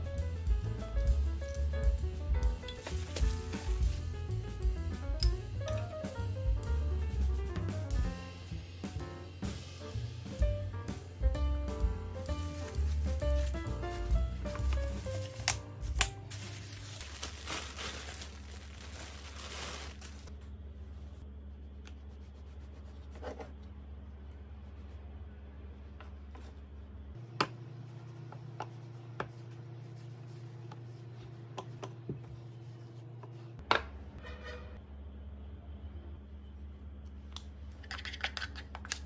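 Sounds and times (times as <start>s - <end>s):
plastic bag crinkling: 2.8s - 4.1s, 14.8s - 20.3s.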